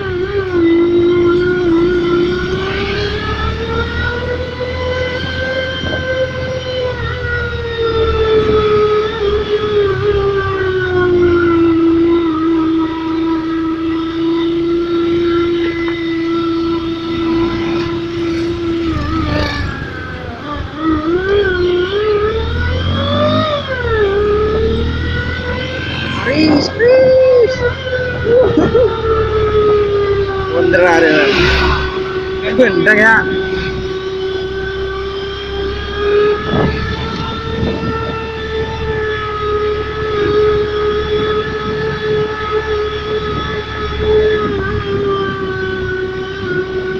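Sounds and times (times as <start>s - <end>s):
synthetic racing engine note: 0.0s - 10.0s, 14.2s - 38.0s.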